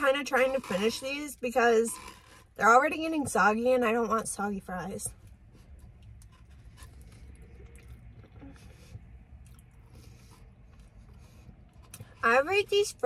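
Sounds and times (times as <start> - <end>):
car engine humming: 0.0 - 13.0
soft chewing: 5.1 - 12.2.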